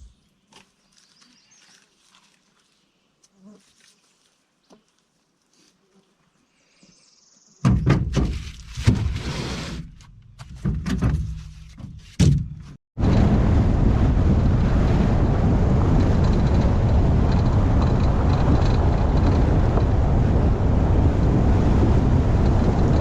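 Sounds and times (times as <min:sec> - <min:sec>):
loud thumps and knocks: 0:07.6 - 0:09.2, 0:10.4 - 0:12.8
vehicle driving: 0:13.0 - 0:23.0.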